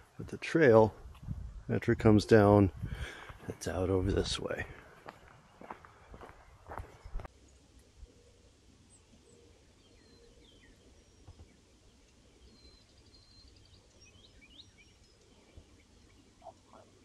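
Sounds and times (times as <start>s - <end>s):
faint bird chirps: 5.5s - 17.0s.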